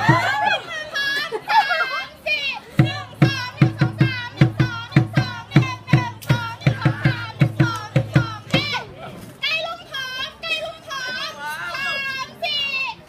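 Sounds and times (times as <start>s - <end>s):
drum beating fast rhythm: 0.0s - 0.4s, 2.8s - 8.8s
children singing or chanting: 0.0s - 8.9s.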